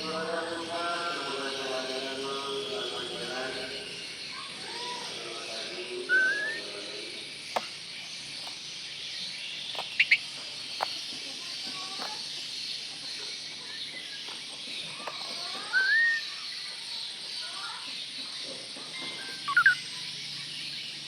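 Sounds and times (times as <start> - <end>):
bird whistled call: 6.1 - 6.8, 9.9 - 10.3, 15.6 - 16.5, 19.2 - 20.0.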